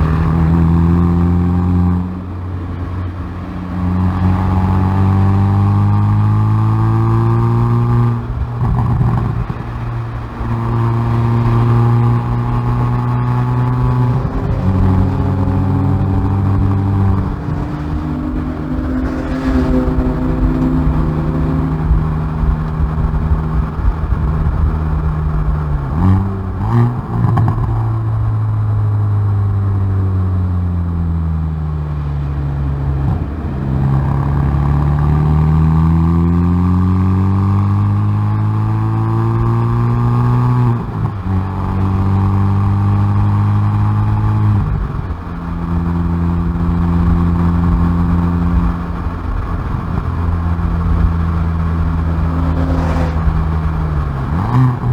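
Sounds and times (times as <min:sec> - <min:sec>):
car exhaust under hard driving: 0:00.0 - 0:54.9
exhaust cracks: 0:07.6 - 0:30.0, 0:44.1 - 0:54.9.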